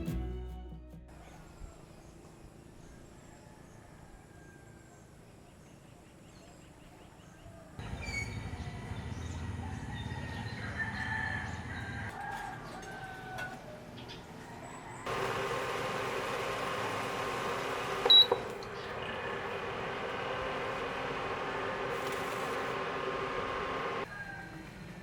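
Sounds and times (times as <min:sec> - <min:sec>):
roosters crowing: 0:02.8 - 0:05.2, 0:07.8 - 0:24.9.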